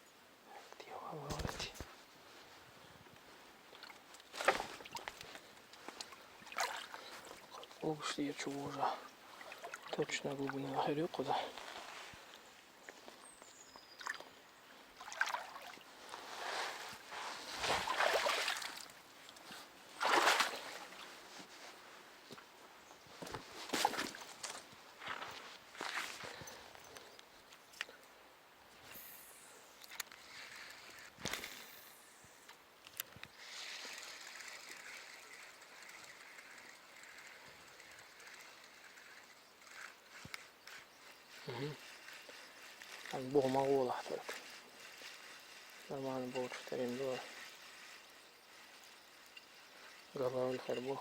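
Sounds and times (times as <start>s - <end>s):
faint outdoor hiss: 0.0s - 51.0s
water splashing and sloshing: 6.0s - 7.8s, 8.5s - 10.6s, 15.0s - 21.2s.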